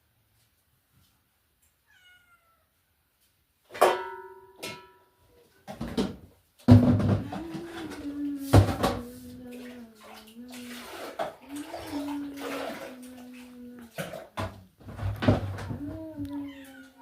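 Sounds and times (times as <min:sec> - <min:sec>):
knocks: 0:05.7 - 0:07.7
water pouring into container: 0:09.4 - 0:14.5.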